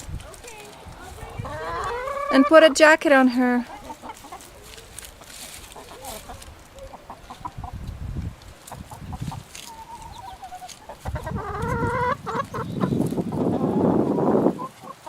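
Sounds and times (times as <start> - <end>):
chickens clucking: 0.0 - 15.0
wavering hen call: 1.4 - 2.7.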